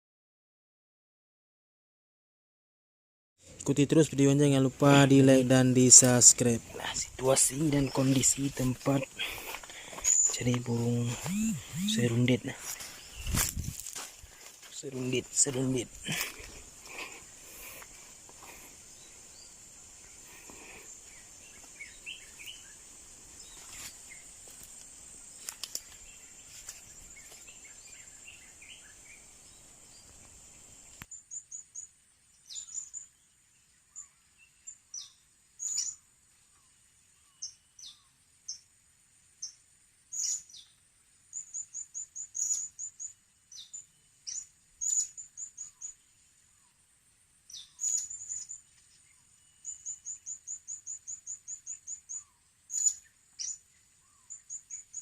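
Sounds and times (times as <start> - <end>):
steady high drone: 10.8 - 12.5.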